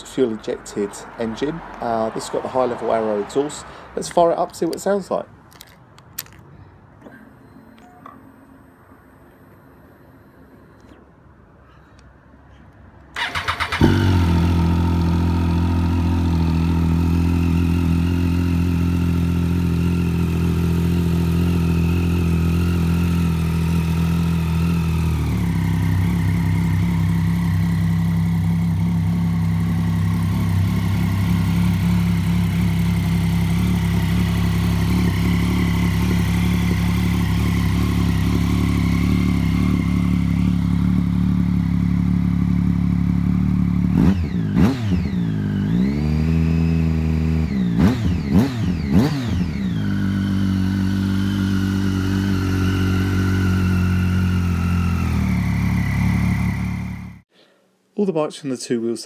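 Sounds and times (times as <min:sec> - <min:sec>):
motorcycle engine idling: 0:13.2 - 0:45.9, 0:47.0 - 0:57.2.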